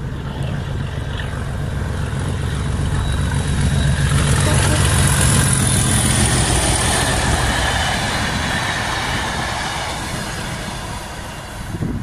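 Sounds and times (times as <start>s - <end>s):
train coaches passing at speed: 0.0s - 12.0s.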